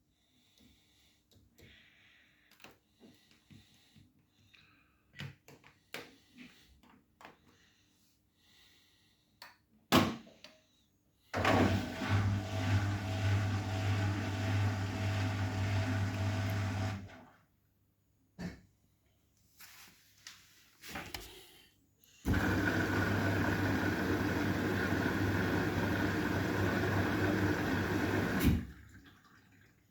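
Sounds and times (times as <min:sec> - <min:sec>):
washing machine humming: 0:11.4 - 0:17.4, 0:22.2 - 0:29.9.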